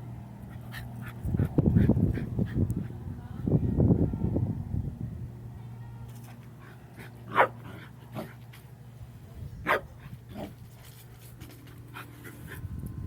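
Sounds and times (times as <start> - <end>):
steady low hum: 0.0 - 13.0
dog barking: 7.3 - 7.6, 9.6 - 9.9.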